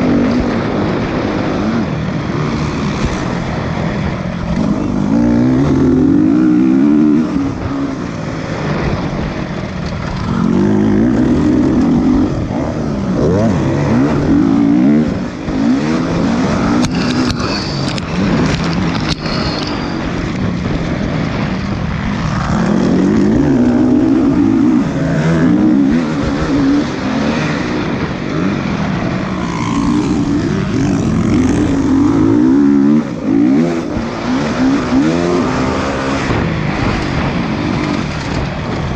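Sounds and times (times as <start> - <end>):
dirt bike engines revving: 0.0 - 38.9.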